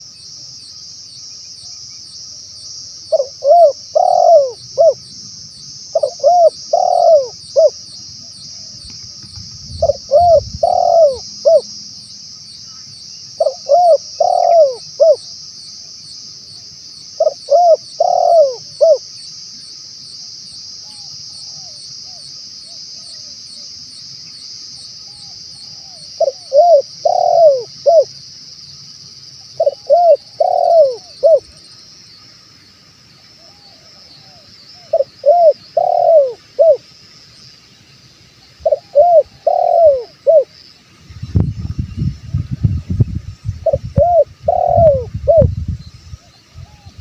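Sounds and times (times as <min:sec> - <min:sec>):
insect chirring: 0:00.0 - 0:47.0
dove cooing: 0:03.1 - 0:05.0, 0:05.9 - 0:08.7, 0:09.7 - 0:11.7, 0:13.4 - 0:15.3, 0:17.2 - 0:19.0, 0:25.1 - 0:28.1, 0:29.6 - 0:31.5, 0:33.4 - 0:36.8, 0:38.6 - 0:40.5, 0:43.6 - 0:45.5.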